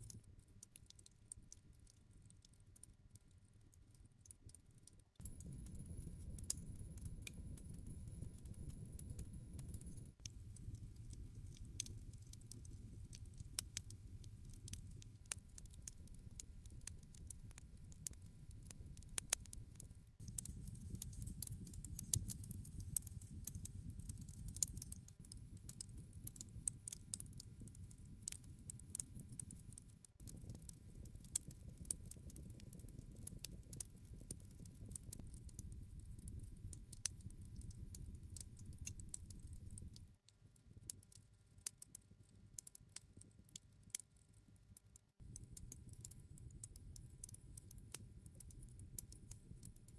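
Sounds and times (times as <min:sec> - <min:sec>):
campfire crackles and pops: 0:00.0 - 0:44.4, 0:45.1 - 0:49.9
rustle of flames: 0:05.3 - 0:19.6, 0:20.3 - 0:40.3.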